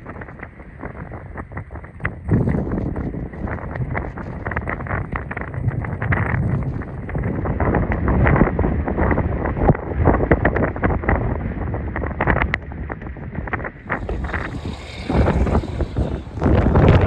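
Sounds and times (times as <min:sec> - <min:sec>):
blizzard wind buffeting microphone: 0:13.2 - 0:17.0.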